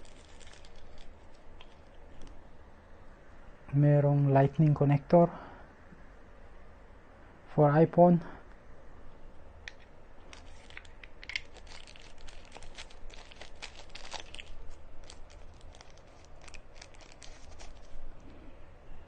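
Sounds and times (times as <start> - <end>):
plastic packaging crinkling: 0.0 - 2.4, 10.2 - 18.1.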